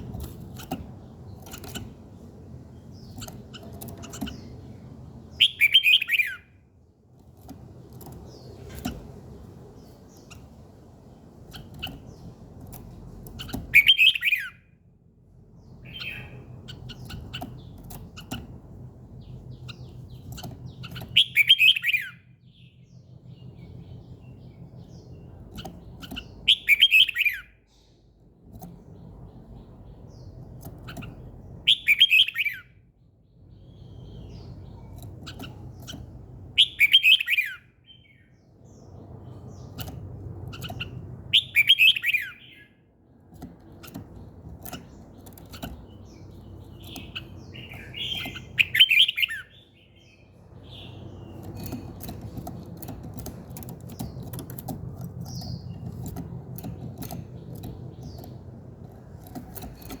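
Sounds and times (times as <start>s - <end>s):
low background hum: 0.0s - 60.0s
songbird singing: 0.0s - 60.0s.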